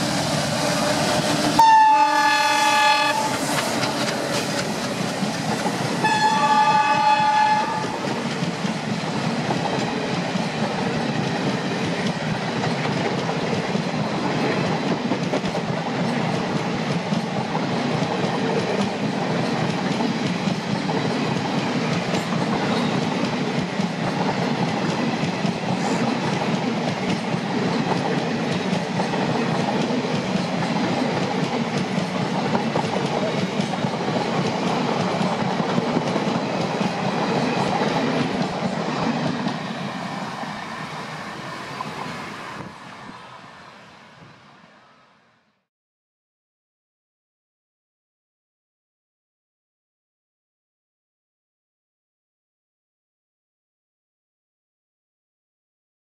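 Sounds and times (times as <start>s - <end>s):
passenger coaches rumbling past: 0.0s - 45.2s
locomotive horn blasts: 1.6s - 3.4s, 6.0s - 8.0s.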